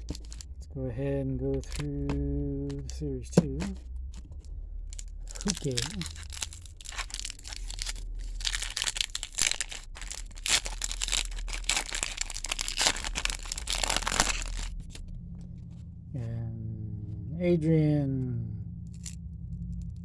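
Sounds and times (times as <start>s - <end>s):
wrapper crinkling: 0.0s - 0.5s, 1.6s - 15.0s
wrapper tearing: 0.0s - 0.5s, 1.6s - 15.0s.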